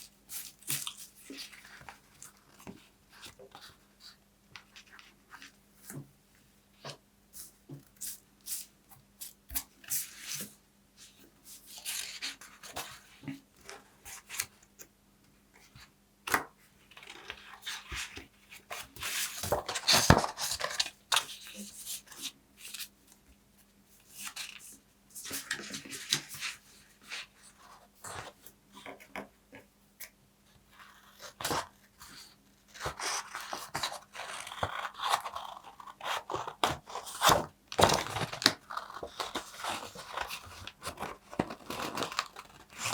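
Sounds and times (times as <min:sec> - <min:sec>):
paper crinkling and tearing: 0:32.8 - 0:42.9.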